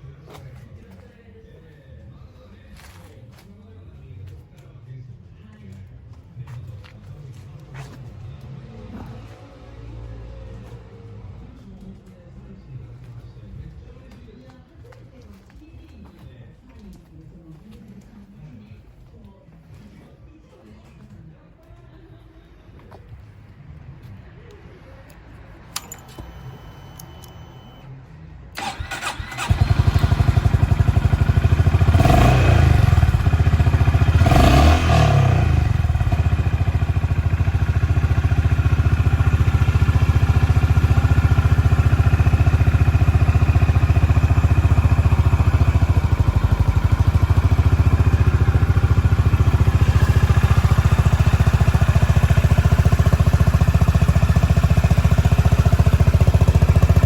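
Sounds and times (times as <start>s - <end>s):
electric starter cranking: 28.6s - 30.1s
motorcycle engine revving and idling: 28.6s - 57.0s.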